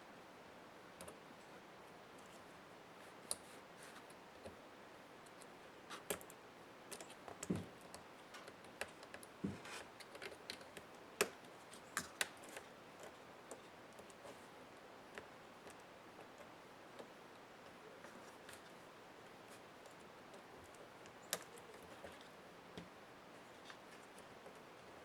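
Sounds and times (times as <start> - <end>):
small clicks and taps of parts: 5.2 - 14.3.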